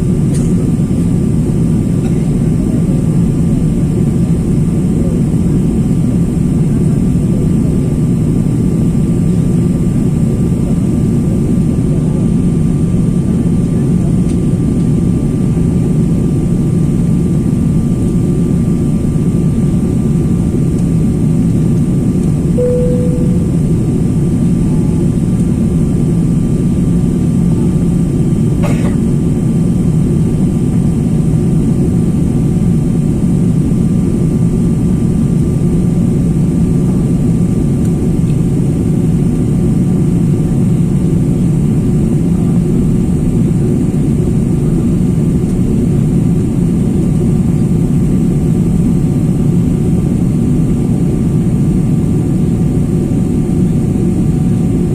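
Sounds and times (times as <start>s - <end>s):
jet engine cabin rumble: 0.0s - 54.9s
cabin chime tone: 22.6s - 24.0s.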